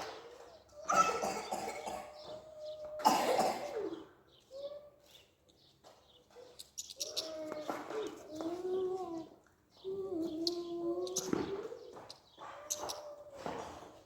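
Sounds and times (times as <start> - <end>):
birds chipping: 0.0 - 14.0
low wavering cooing: 7.0 - 12.0.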